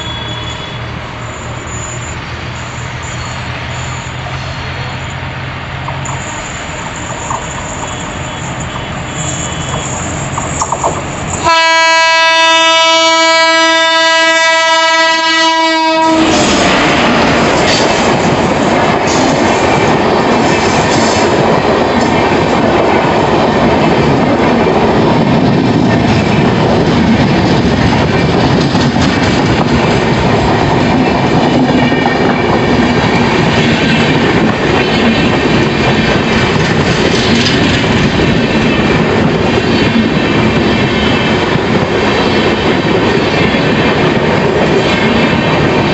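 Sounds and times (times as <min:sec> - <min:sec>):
train horn blast: 0:00.0 - 0:01.0, 0:11.4 - 0:16.8
train wheels rumbling on track: 0:00.0 - 0:45.9.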